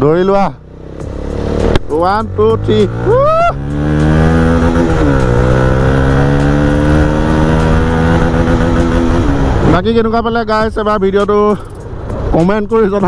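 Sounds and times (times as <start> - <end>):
motorcycle engine accelerating: 0.0 - 10.2.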